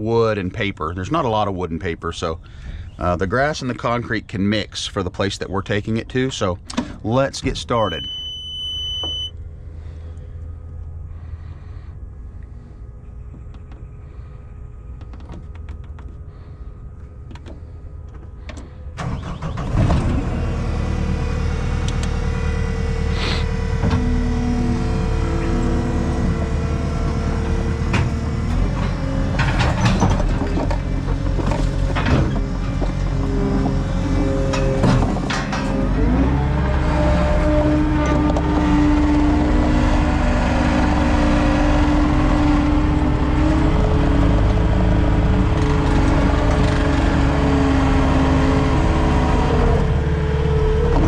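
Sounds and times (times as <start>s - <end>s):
hydraulic whine: 6.6s - 51.0s
warning beep: 7.8s - 9.4s
diesel engine idling and revving: 9.0s - 51.0s.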